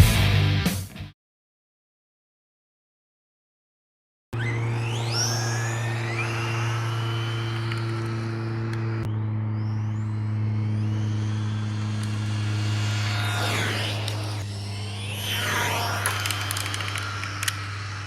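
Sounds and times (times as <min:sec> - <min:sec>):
electric motor whining: 0:04.4 - 0:18.0
low drone: 0:04.4 - 0:18.0
rc car swooping pass: 0:04.4 - 0:18.0.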